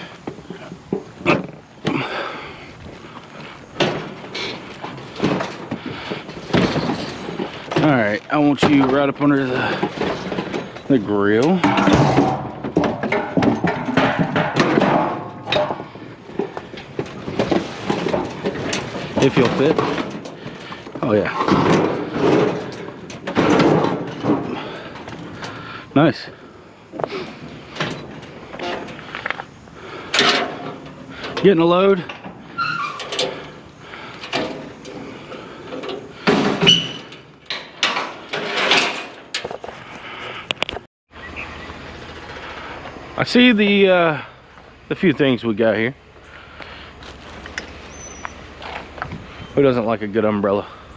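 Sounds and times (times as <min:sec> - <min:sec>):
scrap metal knocking and clattering: 0:00.0 - 0:26.4, 0:27.0 - 0:40.9.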